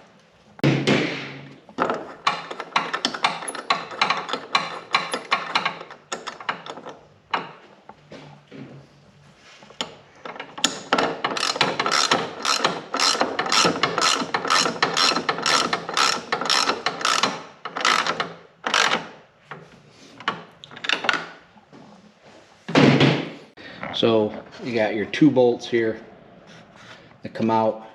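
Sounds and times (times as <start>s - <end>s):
socket ratchet wrench clicking: 11.4s - 19.0s.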